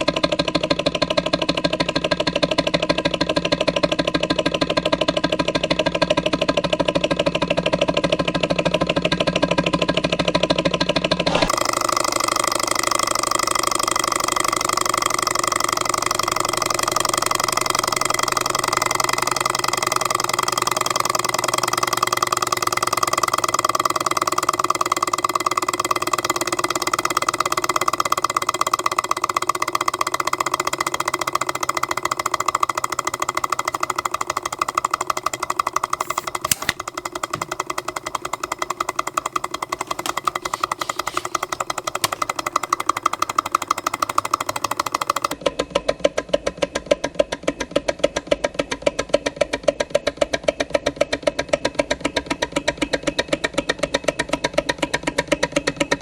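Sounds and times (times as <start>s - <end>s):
stirling engine clattering: 9.6s - 45.4s
sharp click: 36.0s - 37.6s.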